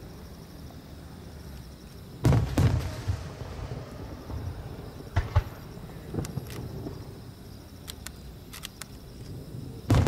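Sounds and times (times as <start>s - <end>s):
firework shells booming: 2.2s - 7.2s, 9.3s - 10.0s.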